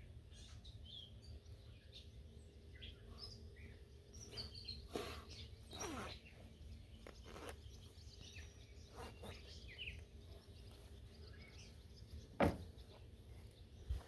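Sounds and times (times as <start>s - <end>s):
birds chirping: 0.0s - 14.0s
outdoor background noise: 0.0s - 14.0s
sharp knock: 12.4s - 12.7s.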